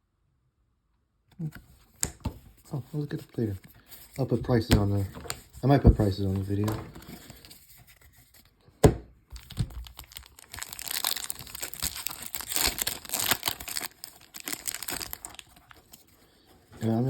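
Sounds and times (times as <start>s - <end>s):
foil wrapper crinkling and tearing: 9.4s - 17.0s.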